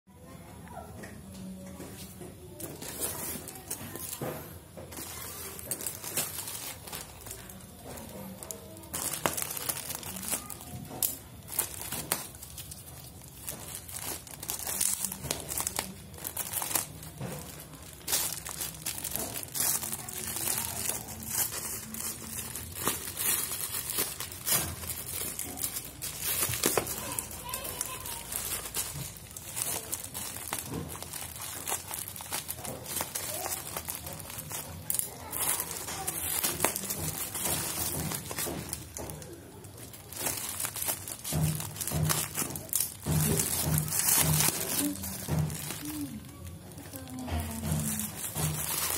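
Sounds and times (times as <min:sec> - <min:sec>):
packaging crinkling: 0:02.4 - 0:48.9.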